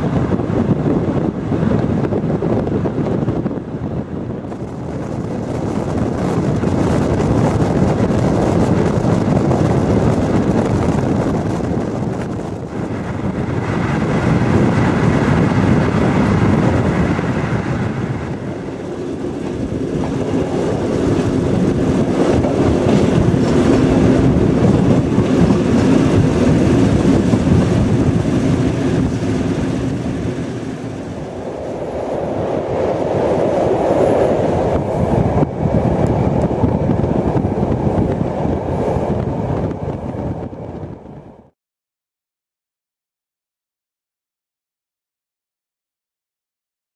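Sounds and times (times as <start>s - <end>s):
train wheels rumbling on rails: 0.0s - 41.5s
wheels clicking over track: 4.5s - 31.7s.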